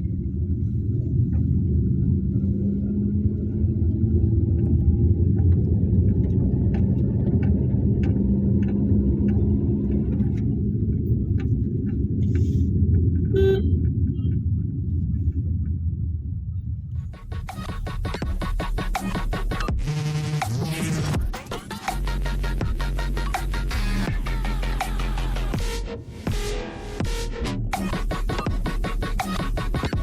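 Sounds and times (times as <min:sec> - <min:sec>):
car engine and tyre rumble: 0:00.0 - 0:30.0
car horn toot: 0:13.3 - 0:13.8.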